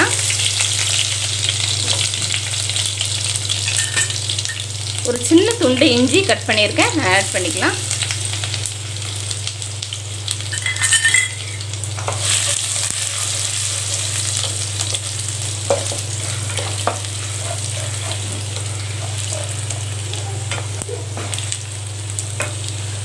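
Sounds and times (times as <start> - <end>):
garlic sizzling in hot oil: 0.0 - 23.0
steady low hum: 1.4 - 23.0
wooden spatula scraping pan: 12.0 - 20.7.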